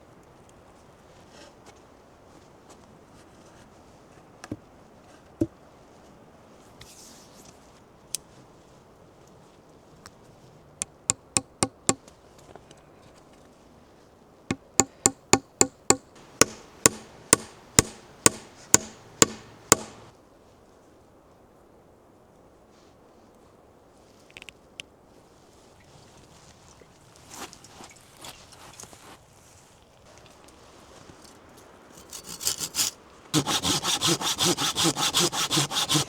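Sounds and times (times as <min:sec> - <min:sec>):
hand tool striking wood: 0:10.8 - 0:12.0, 0:14.5 - 0:20.1, 0:32.0 - 0:36.0.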